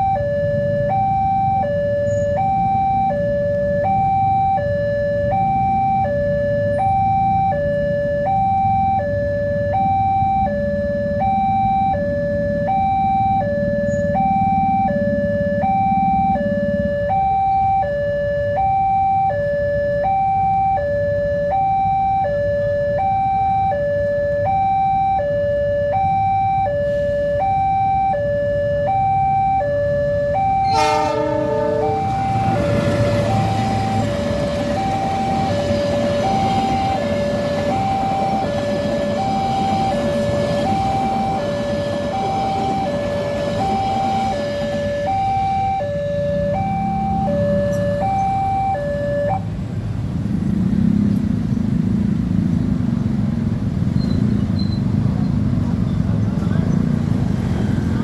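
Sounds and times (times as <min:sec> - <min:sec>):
level crossing two-tone alarm: 0:00.0 - 0:49.8
low rumble: 0:28.8 - 0:49.0.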